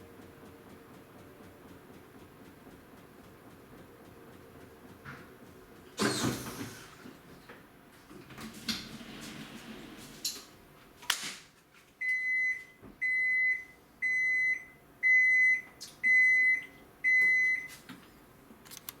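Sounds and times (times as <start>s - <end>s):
washing machine beeps: 12.0s - 17.8s.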